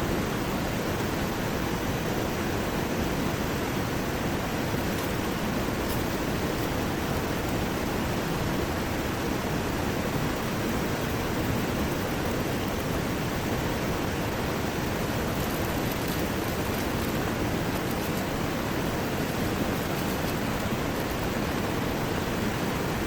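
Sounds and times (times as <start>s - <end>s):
heavy rain: 0.0s - 23.0s.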